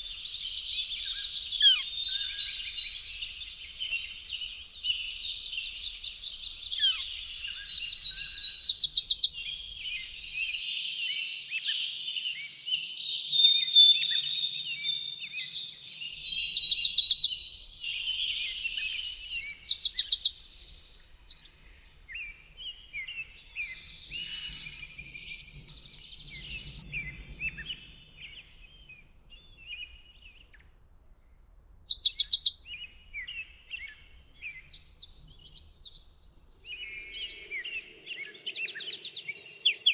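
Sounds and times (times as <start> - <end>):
songbirds chirping and singing: 0.0 - 30.7, 31.8 - 39.9
rapid bird trills: 16.2 - 26.8.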